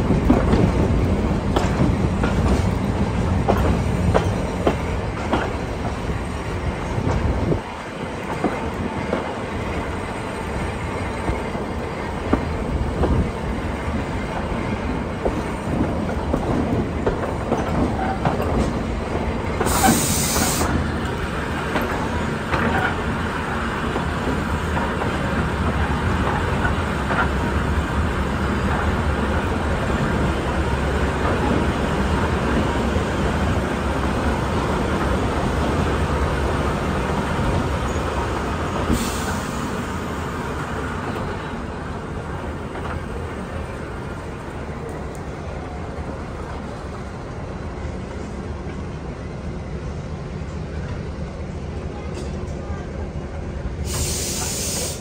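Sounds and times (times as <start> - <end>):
train wheels rumbling on rails: 0.0 - 55.0
short hiss: 19.6 - 20.8, 53.8 - 55.0.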